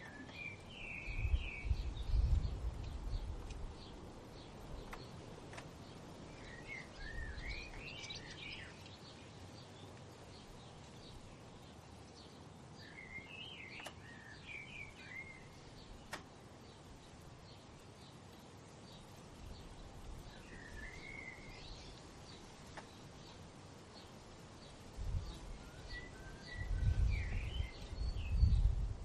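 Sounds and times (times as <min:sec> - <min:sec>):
songbird warbling: 0:06.3 - 0:09.2, 0:12.8 - 0:16.2, 0:20.2 - 0:23.3
sharp clicks: 0:13.7 - 0:14.1, 0:16.0 - 0:16.4.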